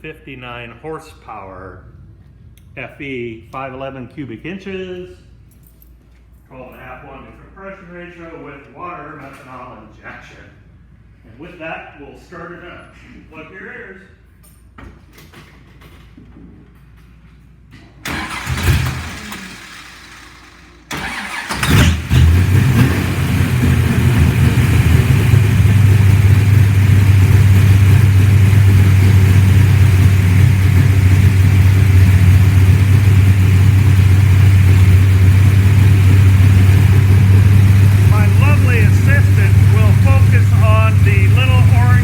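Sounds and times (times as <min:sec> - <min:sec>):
car engine starting and idling: 0:18.0 - 0:42.0.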